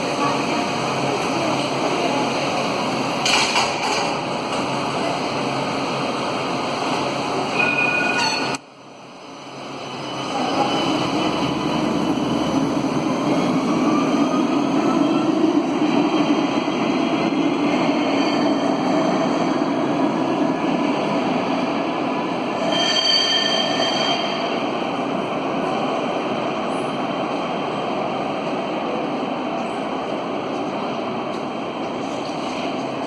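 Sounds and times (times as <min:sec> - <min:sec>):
tram rail rumble: 0:00.0 - 0:33.0.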